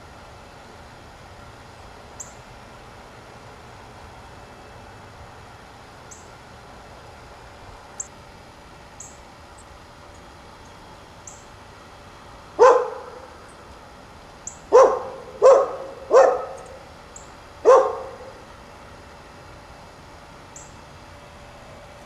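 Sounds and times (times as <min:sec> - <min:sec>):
small bird chirping: 0:02.2 - 0:02.5, 0:06.1 - 0:06.3, 0:09.0 - 0:11.5, 0:14.4 - 0:18.2, 0:20.5 - 0:20.8.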